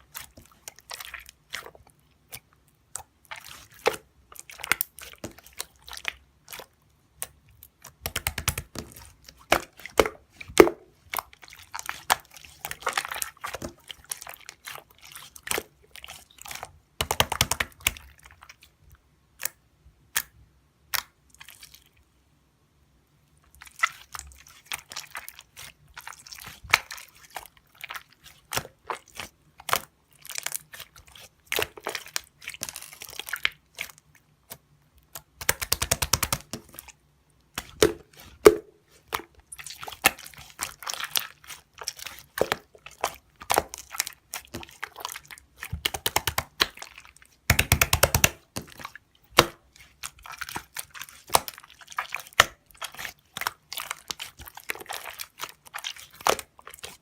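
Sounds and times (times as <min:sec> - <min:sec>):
rapid wet popping: 0:00.0 - 0:18.7, 0:23.4 - 0:57.0
slime squished by hand: 0:23.5 - 0:57.0.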